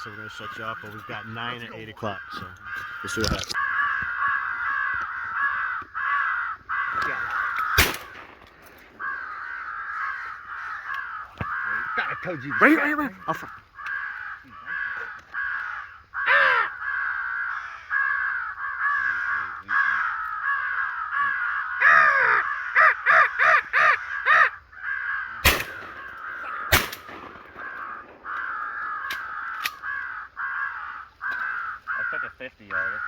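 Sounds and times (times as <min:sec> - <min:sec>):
crows cawing: 0:00.0 - 0:33.0
shotgun shots: 0:07.7 - 0:08.6, 0:25.4 - 0:28.3.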